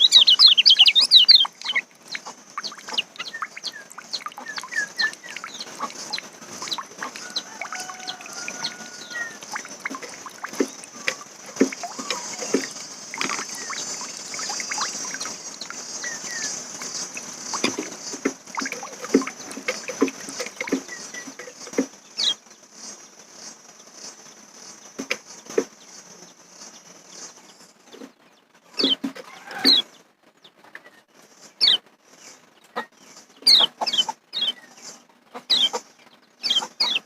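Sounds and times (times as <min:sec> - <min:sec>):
songbirds chirping and twittering: 0:00.0 - 0:37.0.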